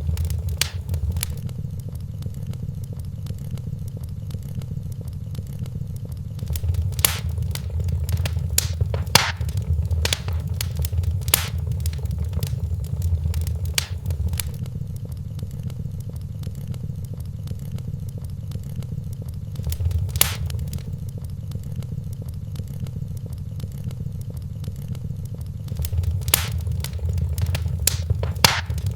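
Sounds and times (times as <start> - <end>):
fire crackling and popping: 0.0 - 1.5, 6.4 - 14.6, 19.5 - 21.1, 25.7 - 28.9
wood fire rumbling: 0.0 - 1.6, 6.4 - 14.6, 19.1 - 24.3, 25.2 - 28.9.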